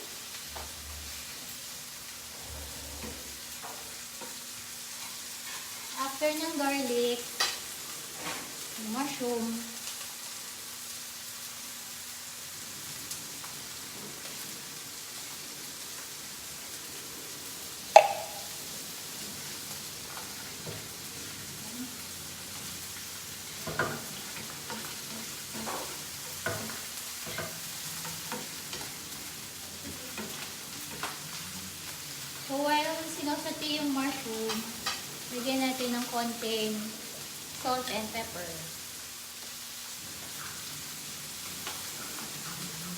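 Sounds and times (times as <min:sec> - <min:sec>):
food sizzling in a pan: 0:00.0 - 0:42.9
utensil knocking against pan: 0:18.0 - 0:18.5.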